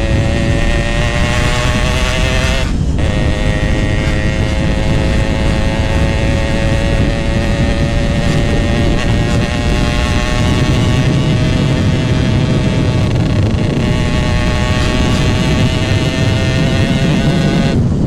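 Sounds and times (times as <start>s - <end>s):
motorcycle engine droning: 0.0s - 18.0s
road rumble: 0.0s - 18.0s
wind on microphone: 0.0s - 18.0s.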